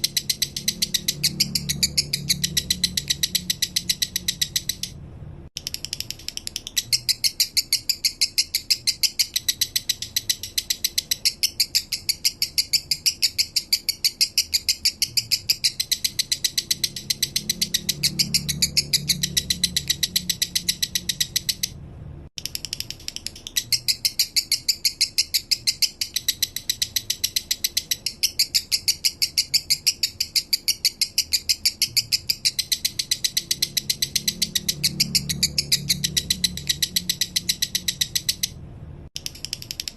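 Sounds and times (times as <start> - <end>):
lovebird chirping song: 0.0 - 5.0, 5.6 - 21.8, 22.4 - 39.9.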